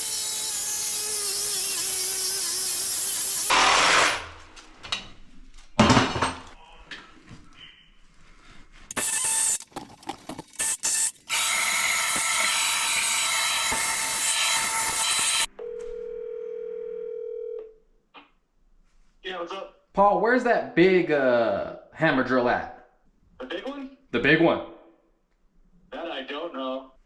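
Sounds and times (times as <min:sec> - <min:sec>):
power tool running: 0:00.0 - 0:04.4, 0:08.9 - 0:15.5.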